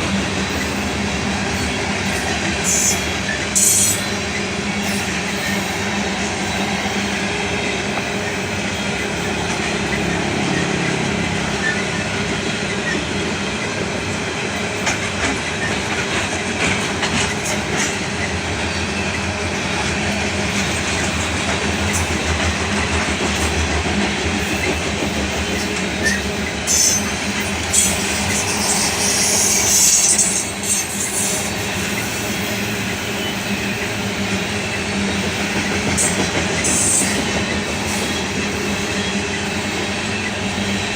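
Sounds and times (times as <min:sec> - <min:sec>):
train wheels rolling on rails: 0:00.0 - 0:40.9
high-pitched wheel squeals: 0:25.5 - 0:33.9.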